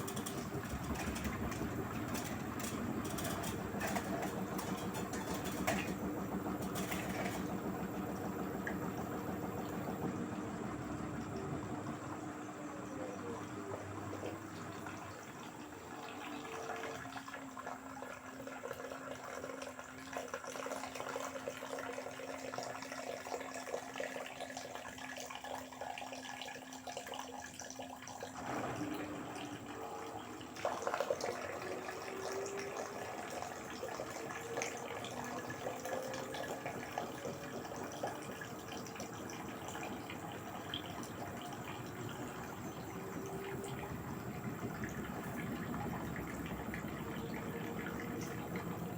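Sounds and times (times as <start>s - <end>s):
water sloshing in drum: 0.0s - 12.0s
washing machine motor hum: 0.0s - 48.9s.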